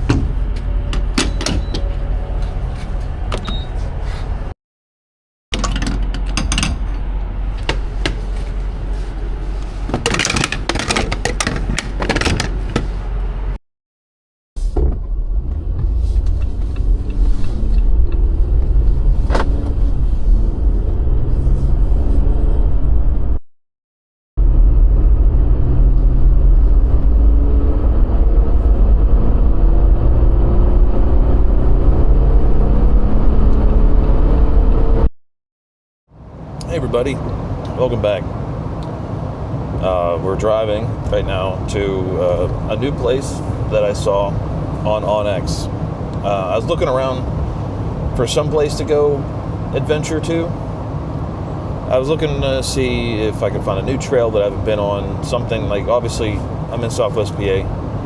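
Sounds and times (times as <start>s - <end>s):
truck clunks and knocks: 0.0s - 4.5s, 5.5s - 13.2s, 14.6s - 17.1s, 18.6s - 19.8s
engine and tyre rumble: 0.0s - 4.6s, 5.5s - 13.6s, 14.6s - 23.4s, 24.4s - 35.1s, 36.1s - 58.0s.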